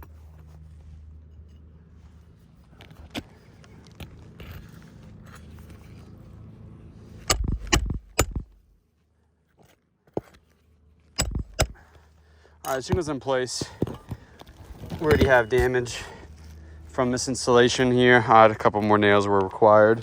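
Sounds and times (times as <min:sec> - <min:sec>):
hammer driving nails into shingles: 0:07.2 - 0:08.6, 0:11.2 - 0:11.9.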